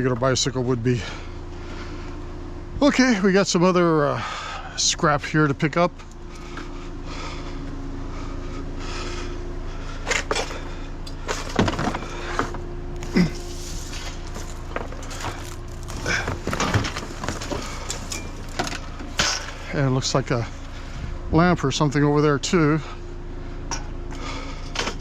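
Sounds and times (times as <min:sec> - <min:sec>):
steady low hum: 0:00.0 - 0:25.0
knocks of scrap being handled: 0:11.3 - 0:19.5.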